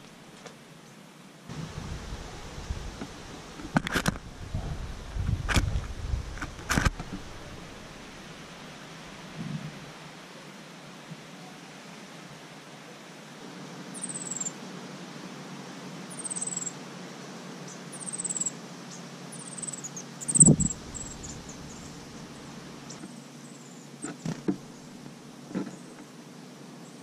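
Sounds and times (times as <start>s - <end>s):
low steady hum: 0.0s - 12.2s, 18.8s - 27.0s
high thin bird chirps: 14.0s - 14.5s, 16.1s - 16.7s, 18.0s - 24.0s.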